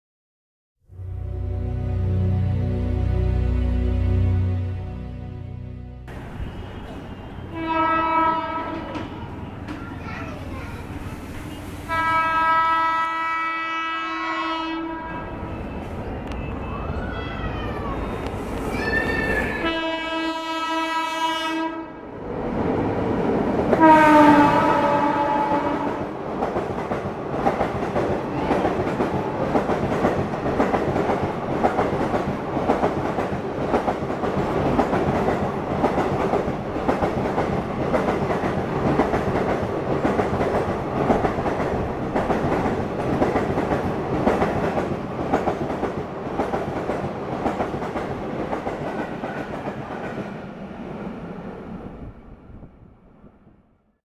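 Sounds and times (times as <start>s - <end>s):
train wagons clattering past: 6.1s - 11.9s, 23.4s - 50.4s.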